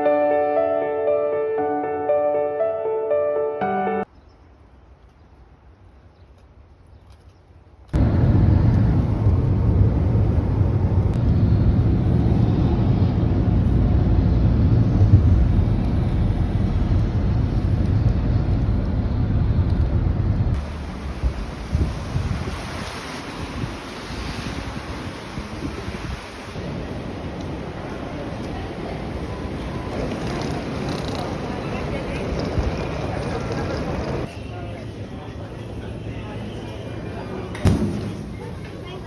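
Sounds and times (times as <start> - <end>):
wind buffeting microphone: 8.0 - 34.3.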